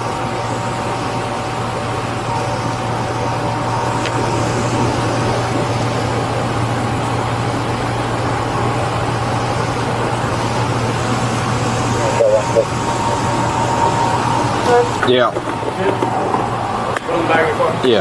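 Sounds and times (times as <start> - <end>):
car engine running: 0.0 - 18.0
faint high tone: 11.9 - 15.0.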